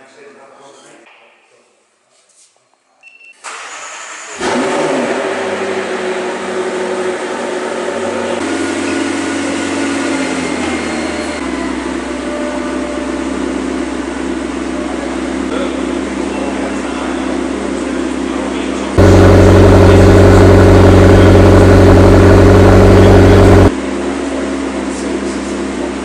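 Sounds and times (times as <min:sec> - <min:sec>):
engine revving and idling: 0:04.4 - 0:11.4, 0:19.0 - 0:23.7.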